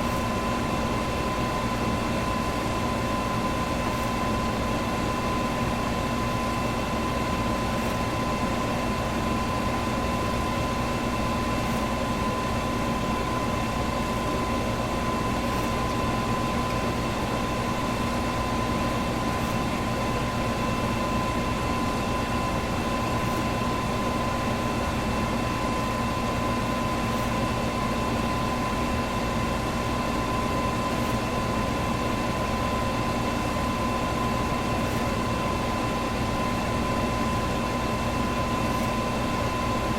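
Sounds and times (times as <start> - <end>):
electric fan whirring: 0.0 - 39.9.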